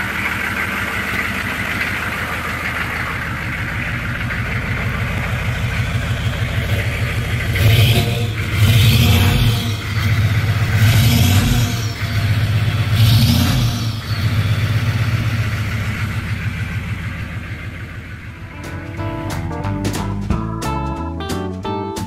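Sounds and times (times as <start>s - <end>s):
diesel engine revving and idling: 0.0s - 19.7s.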